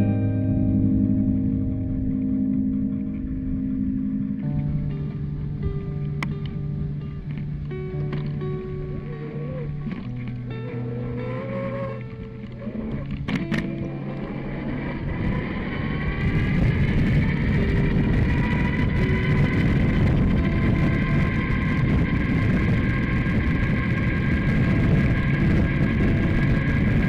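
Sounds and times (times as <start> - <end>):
rushing wind noise: 1.0 - 27.0
vehicle whine rising in pitch: 7.3 - 27.0.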